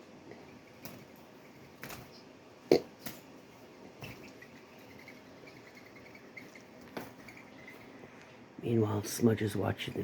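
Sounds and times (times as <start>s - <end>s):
dove wings slapping: 0.7s - 2.2s.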